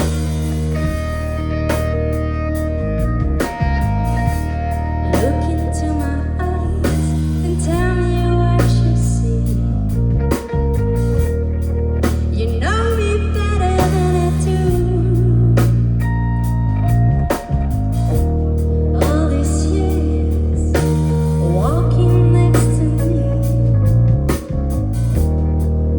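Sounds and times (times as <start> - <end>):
drum kit beat: 0.0 - 6.1, 6.7 - 12.6, 13.6 - 25.9
bass guitar low notes: 0.0 - 25.9
guitar: 0.0 - 25.9
person singing: 5.0 - 10.0, 12.4 - 16.0, 19.0 - 24.0.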